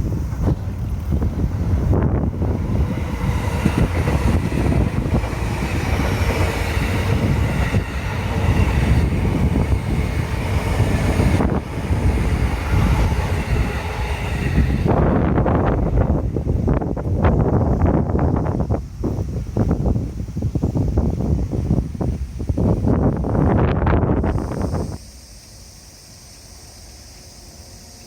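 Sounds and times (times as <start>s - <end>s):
wind buffeting microphone: 0.0s - 25.0s
train wheels on rail: 0.0s - 28.0s.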